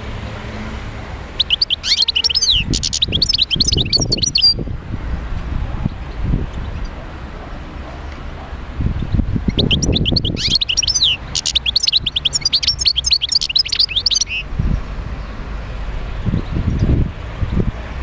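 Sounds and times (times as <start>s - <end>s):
goldfinch singing: 1.4s - 4.6s, 9.4s - 14.5s.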